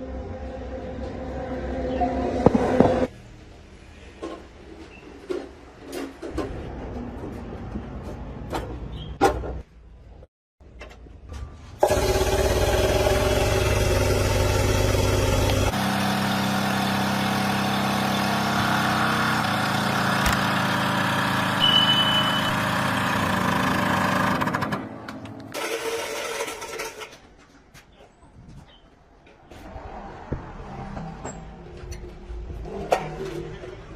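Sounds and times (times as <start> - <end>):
truck engine running: 11.8 - 25.5.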